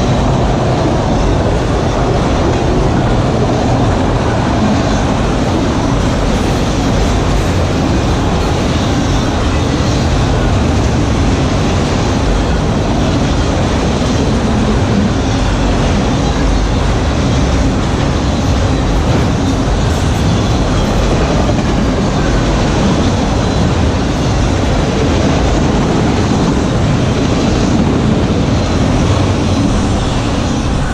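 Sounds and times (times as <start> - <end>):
freight train wheels rumbling: 0.0 - 30.9.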